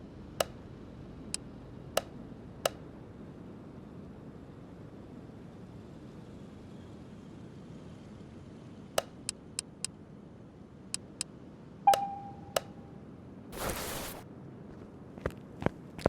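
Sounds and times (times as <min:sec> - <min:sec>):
knock with ringing tone: 0:11.9 - 0:12.8.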